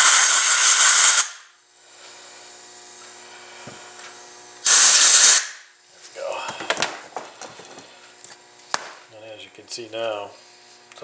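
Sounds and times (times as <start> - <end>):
compressed air hissing: 0.0 - 2.6, 3.2 - 5.7.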